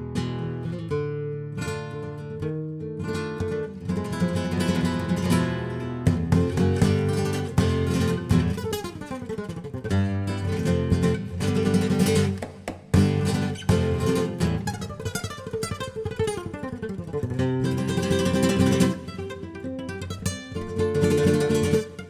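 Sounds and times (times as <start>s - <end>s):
flamenco acoustic guitar: 0.0s - 22.0s.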